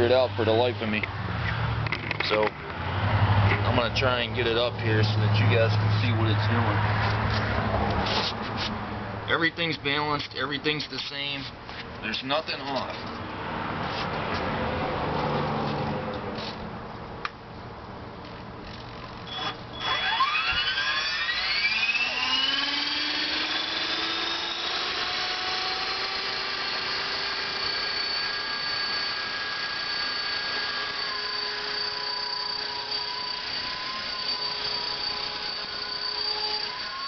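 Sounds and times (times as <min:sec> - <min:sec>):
helicopter motor and rotor whine: 0:18.7 - 0:37.0.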